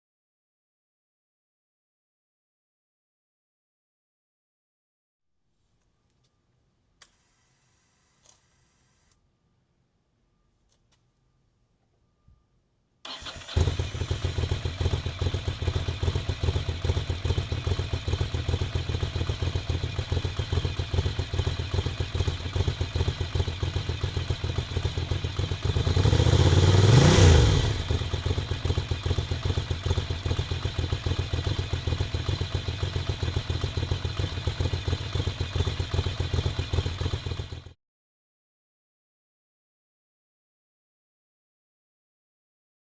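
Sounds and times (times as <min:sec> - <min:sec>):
engine cranking: 0:13.1 - 0:14.6
engine revving: 0:13.1 - 0:37.6
motorcycle engine idling: 0:13.1 - 0:37.8.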